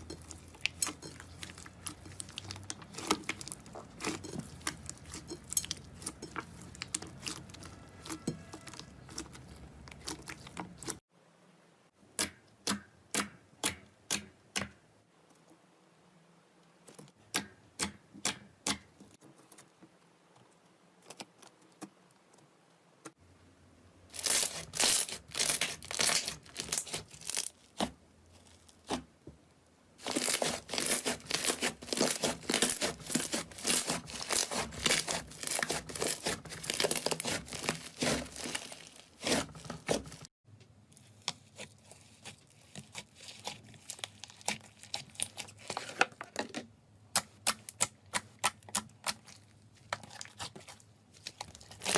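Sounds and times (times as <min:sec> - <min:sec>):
slime crackling and popping: 0:24.1 - 0:29.0, 0:30.0 - 0:40.3.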